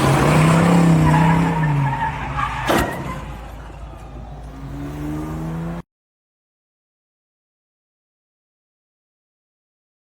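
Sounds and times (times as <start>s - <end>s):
car engine accelerating: 3.3s - 5.8s.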